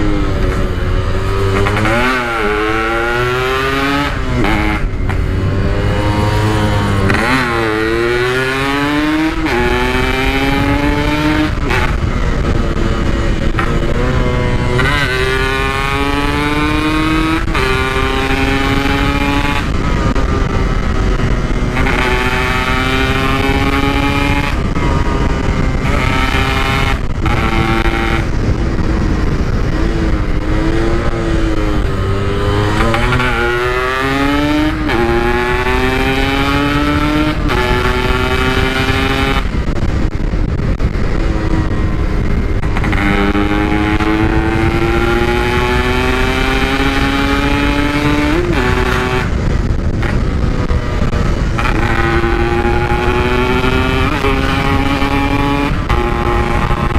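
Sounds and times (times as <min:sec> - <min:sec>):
two-stroke motorcycle engine revving: 0:00.0 - 0:56.9.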